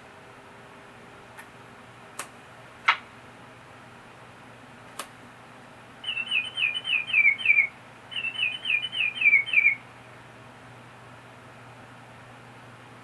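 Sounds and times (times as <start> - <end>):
toy canary chirping: 6.0 - 9.8.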